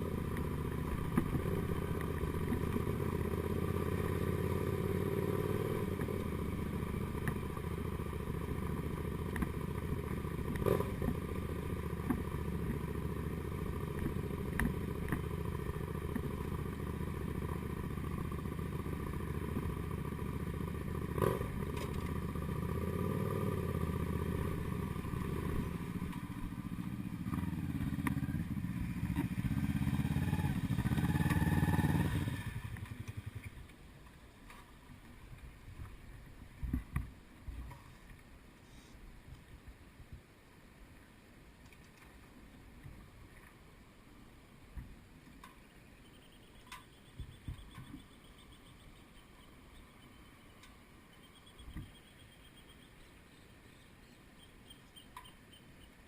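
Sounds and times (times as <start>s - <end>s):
motorcycle engine running: 0.0s - 33.7s.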